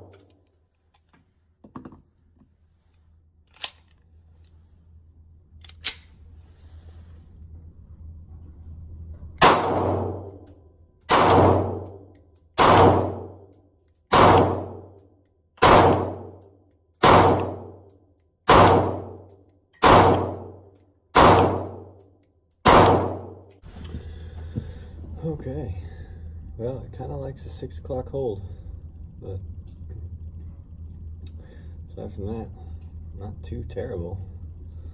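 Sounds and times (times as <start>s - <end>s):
pistol shots cracking: 9.4s - 10.4s, 11.1s - 12.0s, 12.6s - 13.4s, 14.1s - 14.9s, 15.6s - 16.4s, 17.0s - 17.7s, 18.5s - 19.2s, 19.8s - 21.9s, 22.6s - 23.4s.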